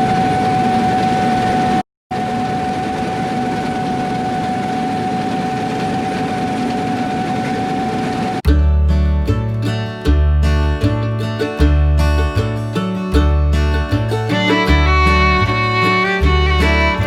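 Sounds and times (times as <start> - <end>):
constant high whine: 0.0 - 8.4.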